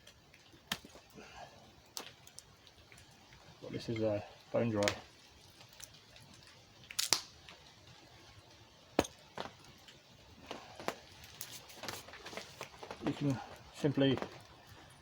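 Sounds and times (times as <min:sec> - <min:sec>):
rustle of handling: 0:09.2 - 0:15.0.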